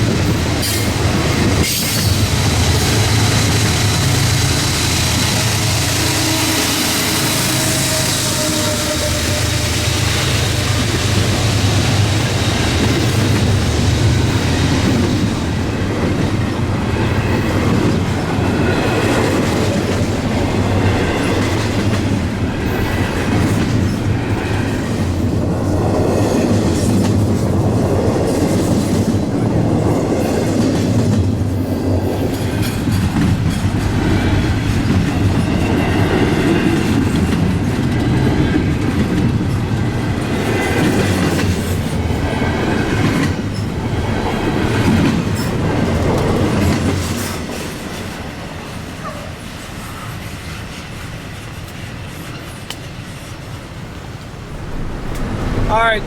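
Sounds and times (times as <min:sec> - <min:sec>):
freight train wheels clattering: 0:00.0 - 0:53.4.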